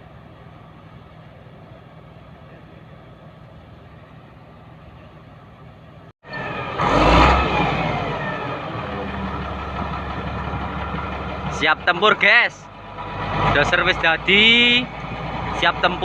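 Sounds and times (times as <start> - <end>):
bulldozer diesel engine revving: 6.3 - 16.0.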